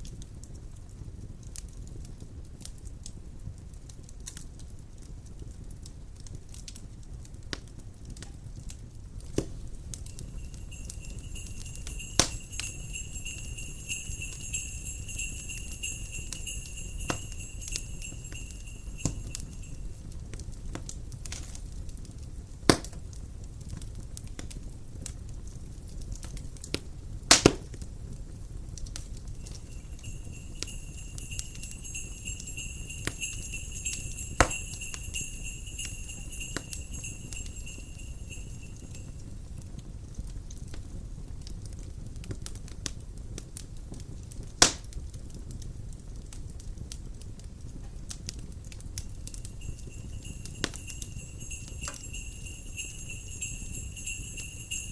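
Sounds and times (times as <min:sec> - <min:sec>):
wood fire crackling and popping: 0:00.0 - 0:54.9
jingle bells shaking: 0:09.7 - 0:20.2, 0:29.2 - 0:39.5, 0:49.0 - 0:54.9.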